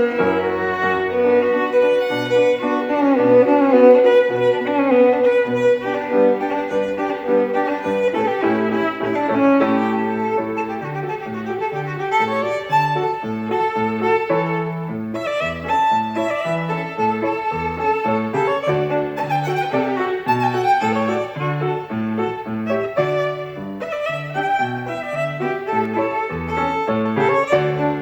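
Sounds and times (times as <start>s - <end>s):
violin playing a melody: 0.0s - 28.0s.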